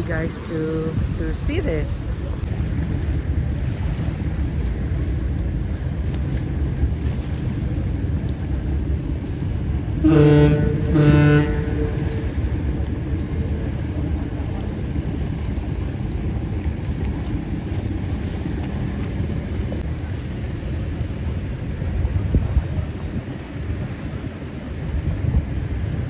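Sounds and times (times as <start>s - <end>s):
waves: 0.0s - 26.0s
wind: 0.0s - 26.0s
ship's horn blasts: 6.2s - 19.8s.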